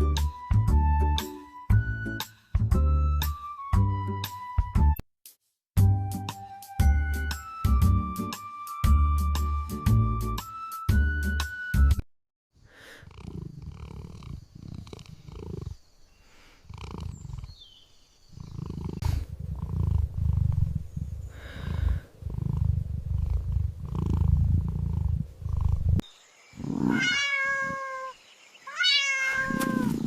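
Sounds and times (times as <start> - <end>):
cat purring: 12.9 - 15.9, 16.6 - 26.0, 26.6 - 27.9, 29.4 - 30.0.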